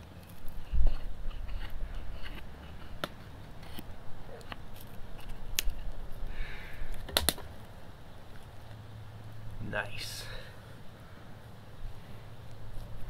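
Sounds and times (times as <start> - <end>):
knife scraping wood: 0.0 - 5.9.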